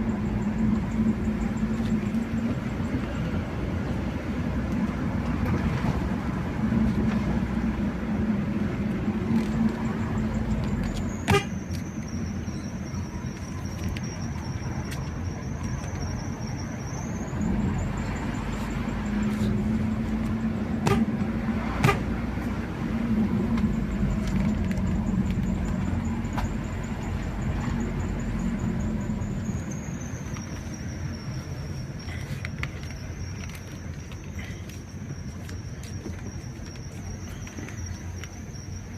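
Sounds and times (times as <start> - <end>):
car engine: 0.0 - 38.9
road rumble: 0.0 - 38.9.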